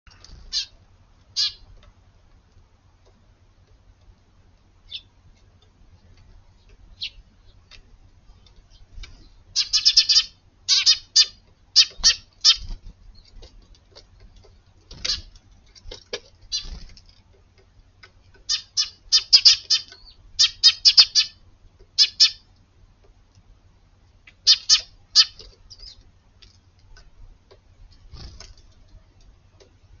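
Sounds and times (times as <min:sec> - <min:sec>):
sparrows chirping: 0:00.1 - 0:01.8, 0:04.8 - 0:05.2, 0:06.4 - 0:13.6, 0:14.9 - 0:15.4, 0:16.4 - 0:16.9, 0:18.4 - 0:21.4, 0:22.0 - 0:22.5, 0:24.2 - 0:26.1.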